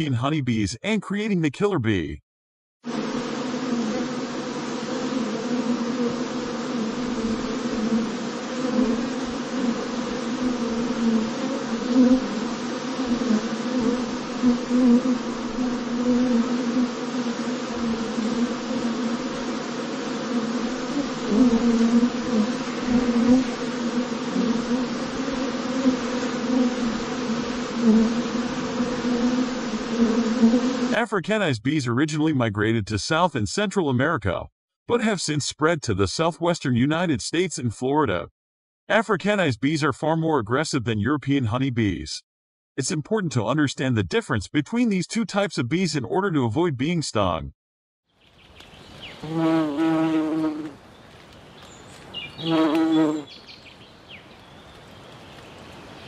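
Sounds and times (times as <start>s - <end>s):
honeybees buzzing: 2.8s - 31.0s, 48.2s - 56.0s.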